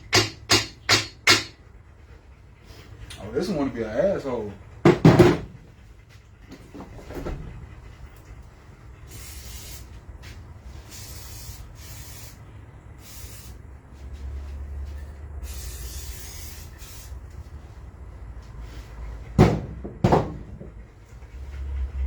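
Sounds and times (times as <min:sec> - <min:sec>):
aerosol can spraying: 0:09.1 - 0:09.9, 0:10.8 - 0:12.4, 0:13.0 - 0:13.6, 0:15.4 - 0:17.2.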